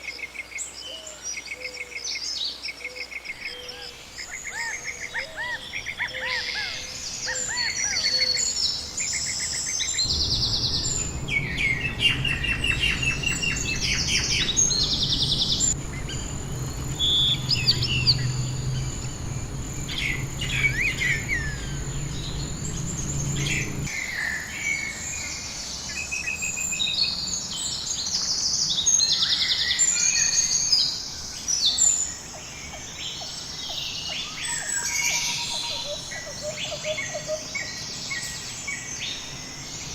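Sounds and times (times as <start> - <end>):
birds chirping and singing: 0.1 - 39.9
low rumble: 9.8 - 23.9.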